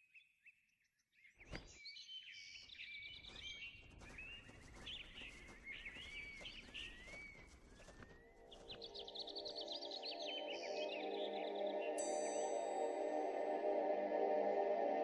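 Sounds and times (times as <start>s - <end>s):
birds chirping: 1.1s - 12.8s.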